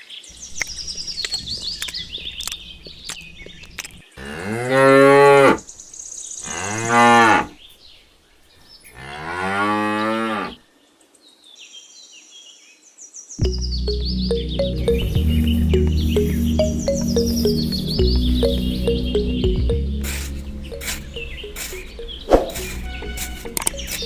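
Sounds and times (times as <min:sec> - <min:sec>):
cow mooing: 0:01.4 - 0:05.6, 0:06.4 - 0:07.6, 0:09.0 - 0:10.6.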